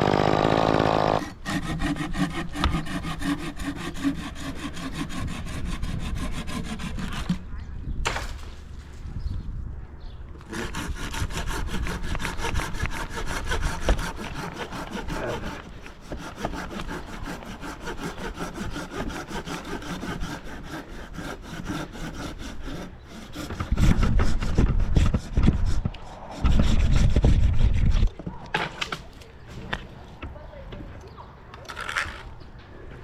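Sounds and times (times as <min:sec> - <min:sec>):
hand saw cutting wood: 0:00.0 - 0:07.5, 0:10.4 - 0:28.1.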